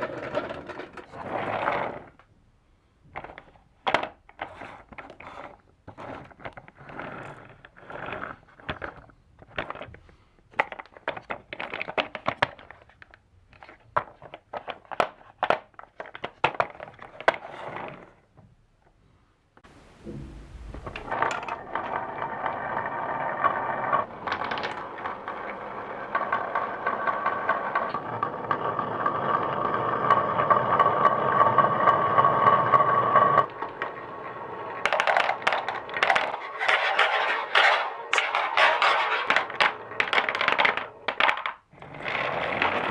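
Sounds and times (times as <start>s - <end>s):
marbles rolling on wood: 0.0s - 2.3s, 20.2s - 42.9s
marbles clacking against wood: 20.8s - 32.0s, 33.4s - 42.9s.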